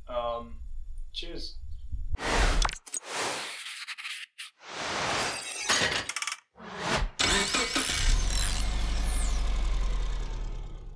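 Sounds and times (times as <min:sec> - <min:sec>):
vehicle engine starting and running: 0:06.8 - 0:10.9.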